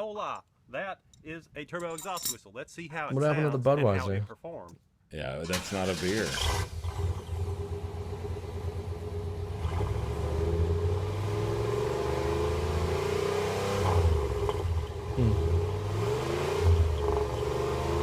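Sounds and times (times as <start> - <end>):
car engine revving: 5.5 - 18.0.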